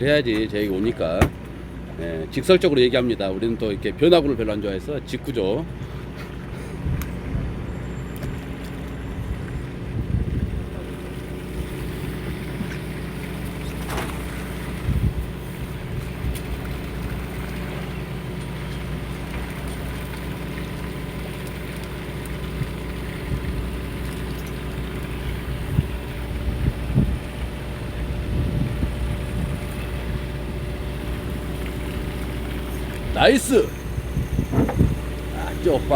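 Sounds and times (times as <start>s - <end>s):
boat engine humming: 0.0s - 35.9s
wind buffeting microphone: 6.4s - 13.1s, 14.1s - 17.4s, 22.5s - 24.0s, 25.2s - 32.2s, 32.8s - 35.9s
short knocks: 34.5s - 34.9s.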